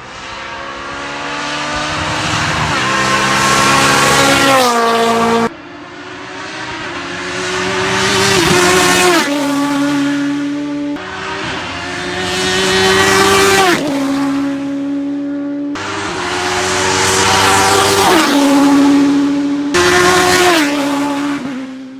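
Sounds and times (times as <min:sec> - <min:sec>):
race cars passing by: 0:00.0 - 0:21.9.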